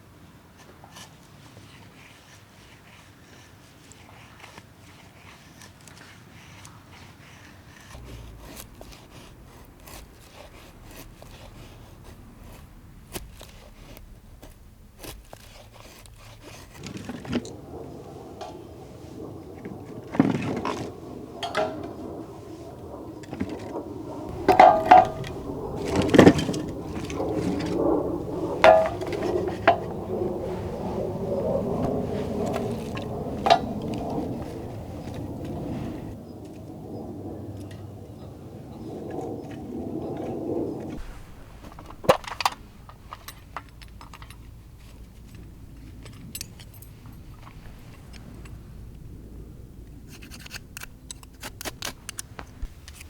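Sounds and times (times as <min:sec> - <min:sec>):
cookware knocking and clinking: 0:24.4 - 0:25.3, 0:28.6 - 0:29.9.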